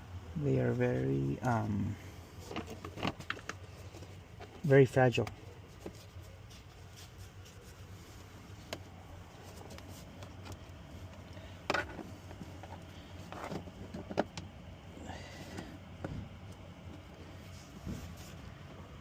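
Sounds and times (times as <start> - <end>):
steady low hum: 0.0 - 19.0
clicks and knocks of parts handled: 9.6 - 14.5.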